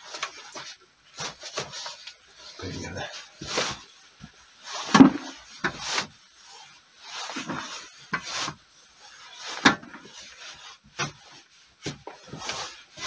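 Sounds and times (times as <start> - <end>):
hand tool scraping sandy earth: 4.6 - 13.0.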